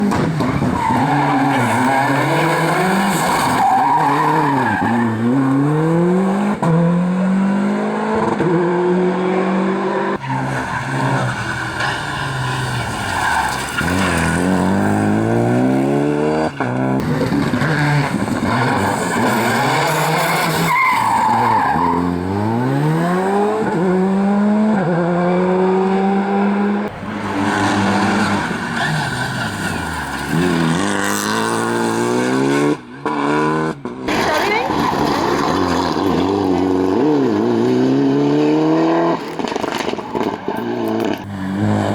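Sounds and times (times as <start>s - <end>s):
rally car engines revving: 0.0s - 41.9s
tyre squeal: 10.1s - 22.6s.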